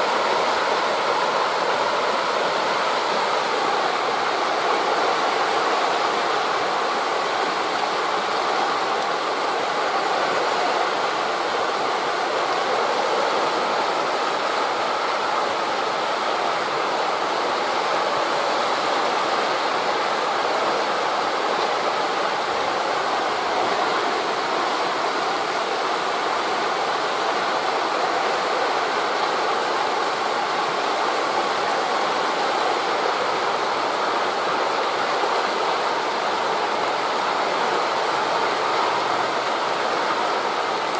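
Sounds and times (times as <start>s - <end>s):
wind through leaves: 0.0s - 40.9s.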